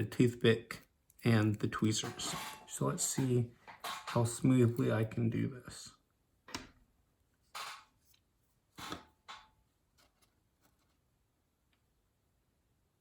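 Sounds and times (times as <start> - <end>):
hand tool rustles: 1.4 - 5.0.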